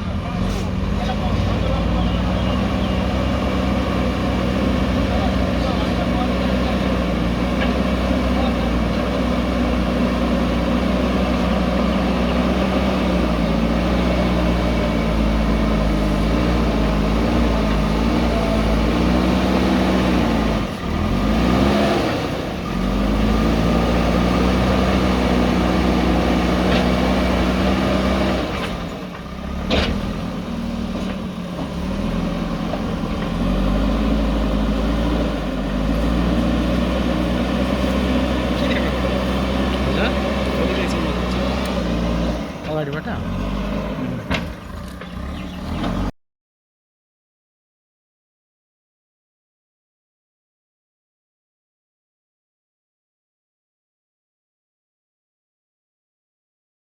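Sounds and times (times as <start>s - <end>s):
diesel engine under load: 0.0s - 46.2s.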